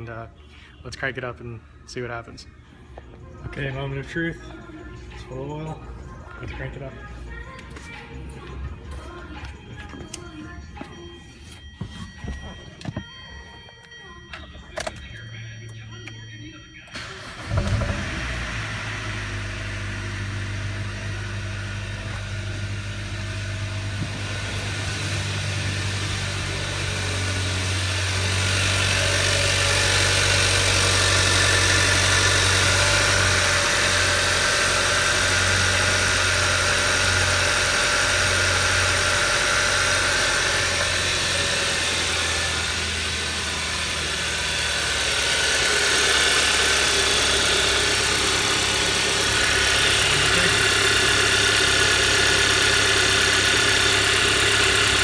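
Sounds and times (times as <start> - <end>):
car engine idling: 16.9 - 55.0.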